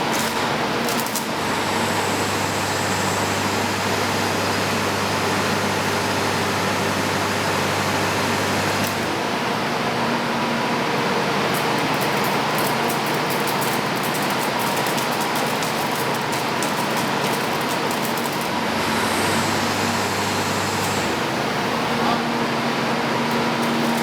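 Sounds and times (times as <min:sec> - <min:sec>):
welding machine hissing: 0:00.0 - 0:05.1, 0:11.6 - 0:22.3, 0:23.1 - 0:24.0.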